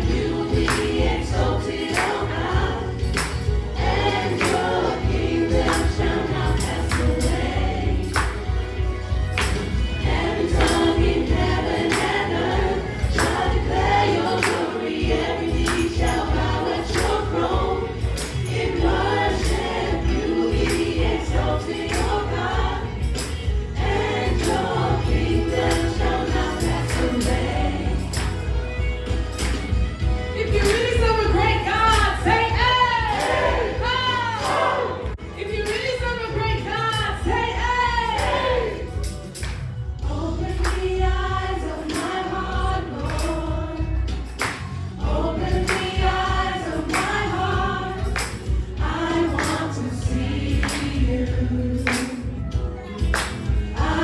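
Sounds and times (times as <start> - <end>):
bass line: 0.0 - 14.4, 15.0 - 35.5
choir singing gospel song: 0.0 - 54.0
live band playing: 28.0 - 40.0.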